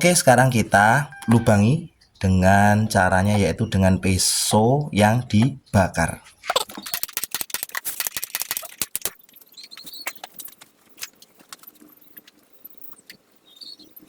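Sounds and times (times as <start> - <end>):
faint hum: 0.0 - 6.3
plastic container and knife rattling: 6.4 - 10.6.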